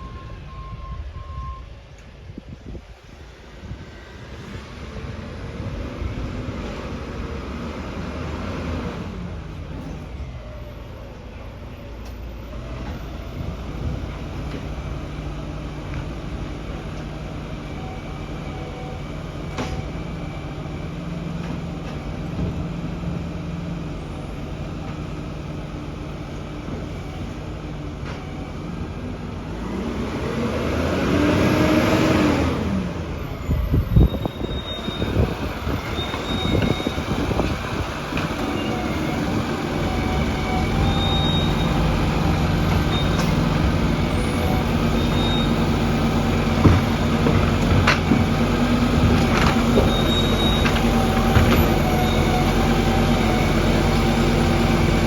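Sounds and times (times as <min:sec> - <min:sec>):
garbage truck engine revving: 0:12.4 - 0:55.0.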